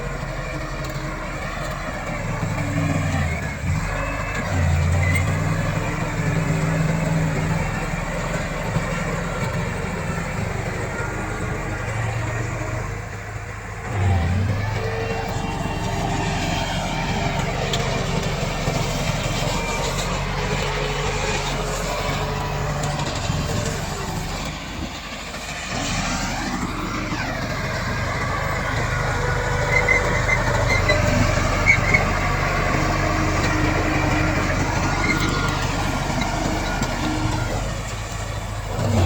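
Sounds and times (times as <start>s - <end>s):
bulldozer diesel engine droning: 0.0s - 39.0s.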